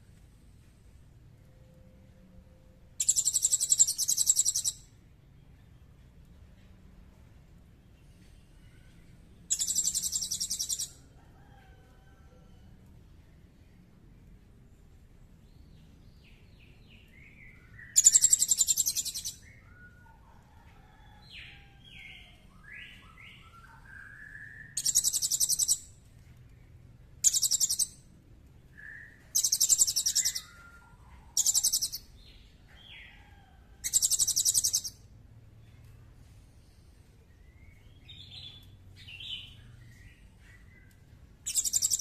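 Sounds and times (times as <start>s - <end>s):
bird chirps and whistles: 3.0s - 4.8s, 17.8s - 19.4s, 28.8s - 32.0s, 41.5s - 42.0s
songbird rattling trills: 18.0s - 19.3s.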